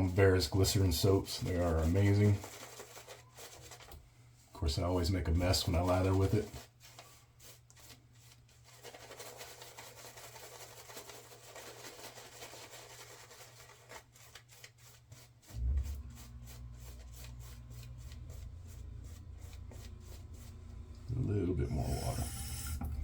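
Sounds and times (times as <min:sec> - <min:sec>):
shaving brush swishing lather: 0:00.0 - 0:03.9, 0:04.8 - 0:23.0
steady low hum: 0:15.5 - 0:23.0.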